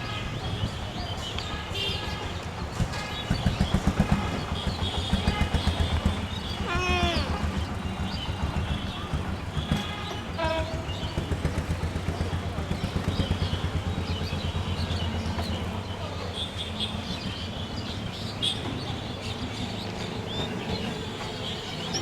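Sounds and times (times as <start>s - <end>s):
train rumbling past: 0.0s - 22.0s
birds chirping: 0.1s - 22.0s.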